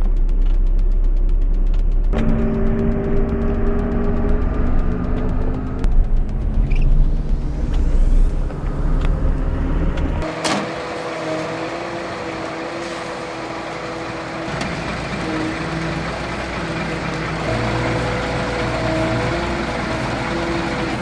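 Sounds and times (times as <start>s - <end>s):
deep bass music: 0.0s - 10.3s, 17.3s - 21.0s
truck engine droning: 0.0s - 21.0s.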